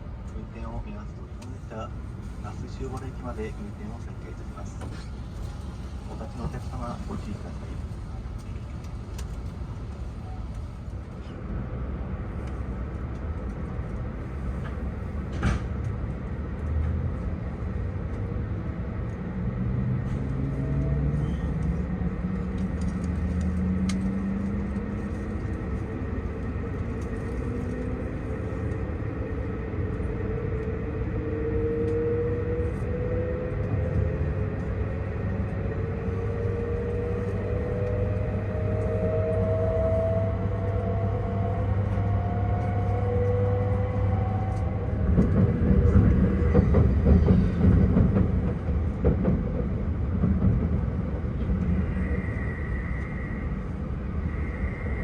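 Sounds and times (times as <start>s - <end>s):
train running rumble: 0.0s - 55.0s
traction motors whine: 51.5s - 55.0s.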